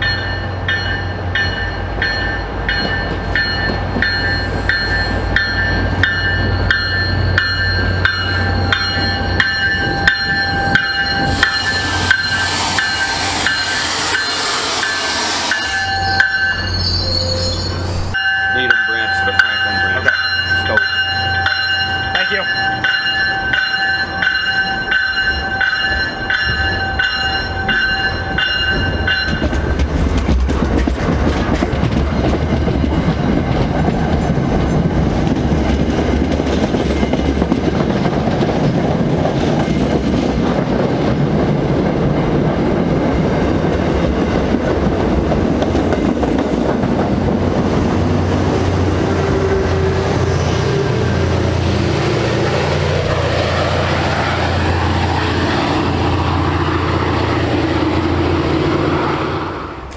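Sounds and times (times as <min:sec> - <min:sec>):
train bell ringing: 0:00.0 - 0:29.8, 0:55.8 - 0:58.6
diesel locomotive engine drone: 0:00.0 - 0:59.9
train wheels rumbling and clattering: 0:00.0 - 0:59.9.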